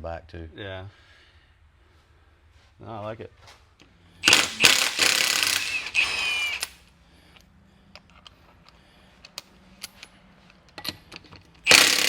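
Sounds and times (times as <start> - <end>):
impact wrench running: 4.2 - 6.9, 11.6 - 12.0.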